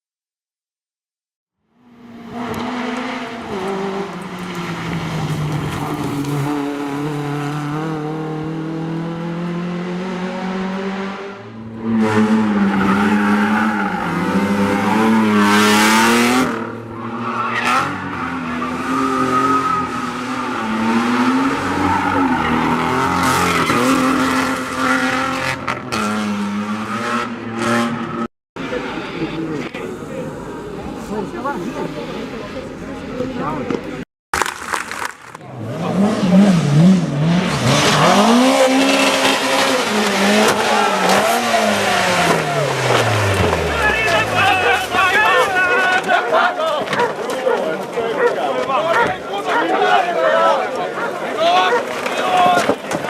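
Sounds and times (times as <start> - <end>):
rally car engine revving: 1.8 - 33.2, 35.4 - 53.0.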